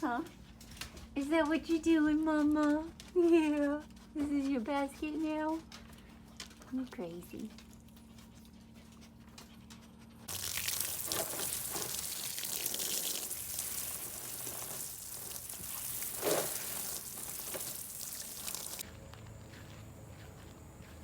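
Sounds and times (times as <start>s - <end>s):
running water rushing: 10.3s - 18.8s.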